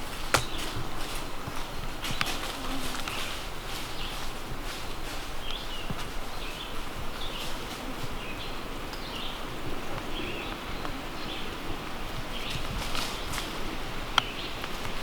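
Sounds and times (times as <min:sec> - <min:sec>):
footsteps in dry leaves: 0:00.0 - 0:08.2.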